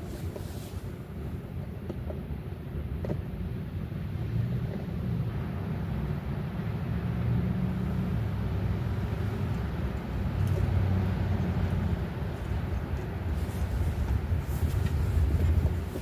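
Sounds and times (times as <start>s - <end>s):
wind buffeting microphone: 7.4s - 16.0s.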